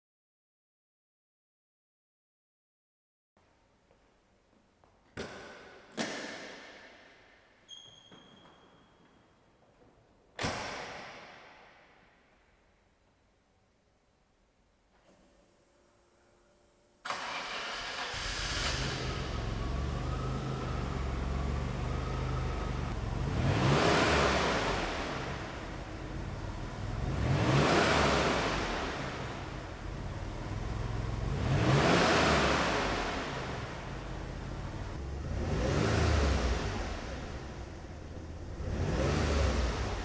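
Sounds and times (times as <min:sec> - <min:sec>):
car engine starting and revving: 0:17.1 - 0:40.0.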